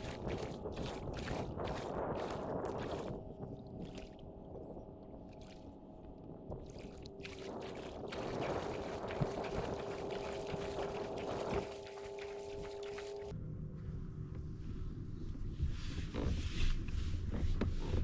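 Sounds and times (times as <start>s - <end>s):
kayak moving across water: 0.0s - 13.3s
motor hum: 0.0s - 15.5s.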